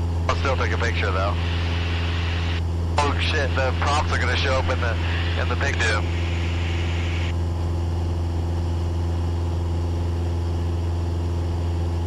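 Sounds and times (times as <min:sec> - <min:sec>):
airplane engine and propeller drone: 0:00.0 - 0:12.0.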